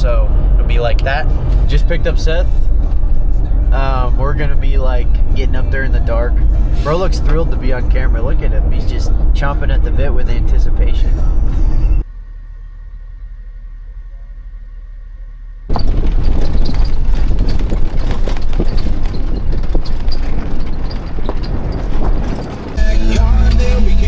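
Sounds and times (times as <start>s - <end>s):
rough rumbling and buffeting: 0.0s - 24.0s
knocks and rattles: 15.7s - 22.8s.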